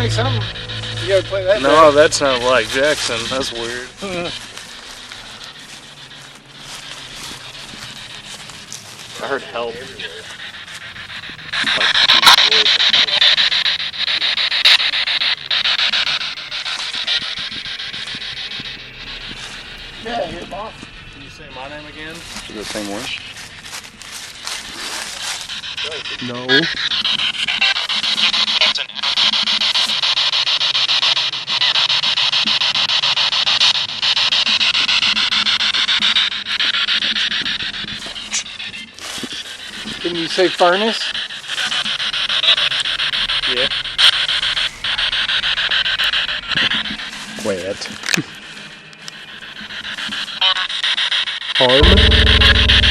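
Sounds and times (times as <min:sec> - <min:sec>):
radio static sweeping channels: 0:00.0 - 0:28.7, 0:41.6 - 0:48.0.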